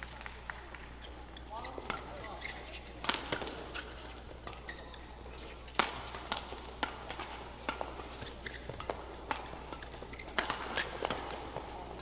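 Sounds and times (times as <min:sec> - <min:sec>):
racket striking shuttlecock: 0:03.0 - 0:12.0.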